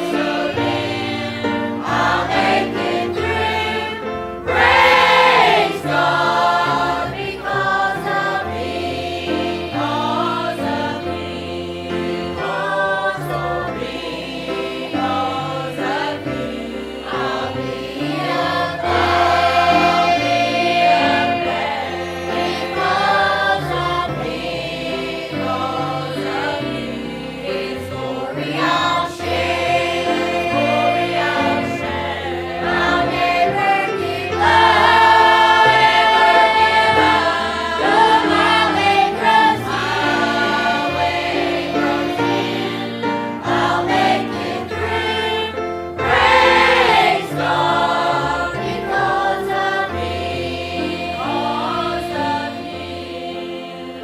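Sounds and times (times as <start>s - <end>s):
choir singing gospel: 0.0s - 54.0s
instrumental accompaniment: 0.0s - 54.0s.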